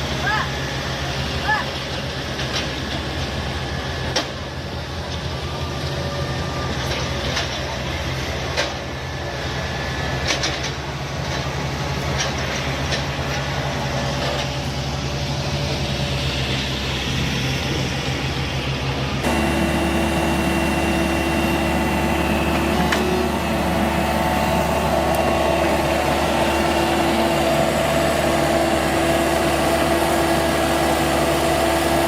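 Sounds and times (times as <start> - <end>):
diesel engine humming: 0.0 - 32.0.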